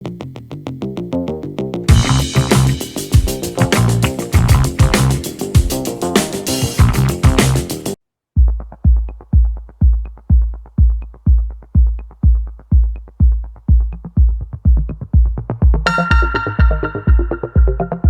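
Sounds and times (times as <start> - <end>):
busy electronic music passage: 1.9 - 8.0, 15.7 - 18.0
drum machine kick beat: 1.9 - 18.0
bright synth tones: 15.9 - 18.0.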